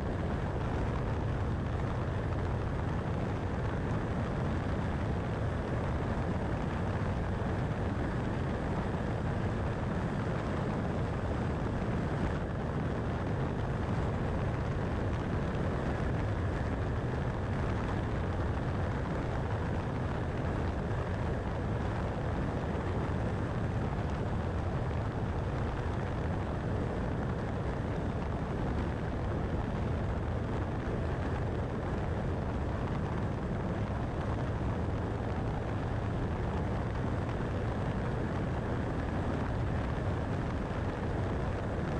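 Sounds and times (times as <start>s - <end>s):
car road noise at highway speed: 0.0s - 41.9s.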